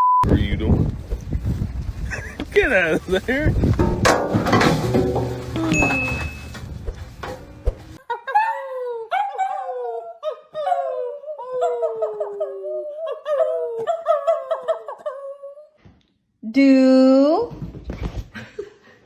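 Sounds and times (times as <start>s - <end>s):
dog whining and howling: 8.3s - 15.7s.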